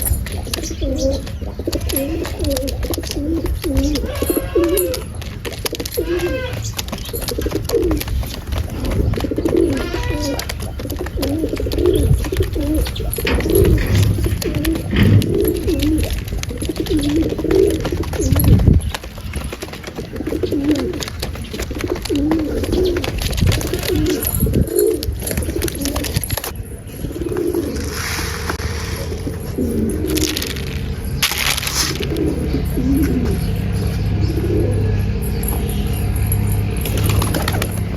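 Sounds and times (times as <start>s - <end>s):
pigeons cooing: 0.0s - 37.9s
low rumbling and thumping: 2.7s - 37.9s
rustling hiss: 27.6s - 29.3s.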